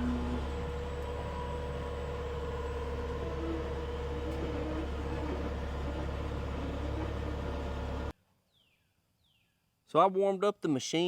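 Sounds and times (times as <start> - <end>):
excavator diesel engine running: 0.0 - 8.1.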